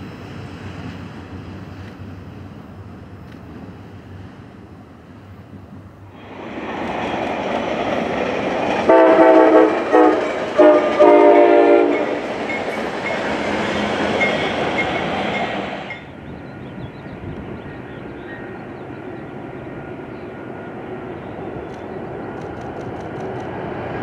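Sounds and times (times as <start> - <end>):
train wheels clattering: 6.3 - 16.1
train horn blasts: 8.8 - 12.3.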